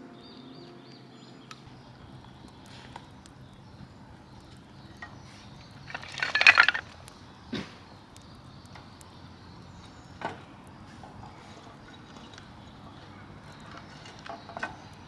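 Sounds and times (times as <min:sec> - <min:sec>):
hard objects clinking and rattling: 0:05.0 - 0:07.2.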